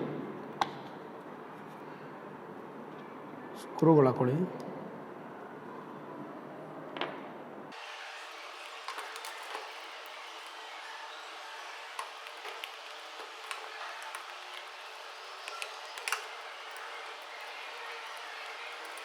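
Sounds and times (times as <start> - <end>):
steady hiss: 7.8 - 19.0.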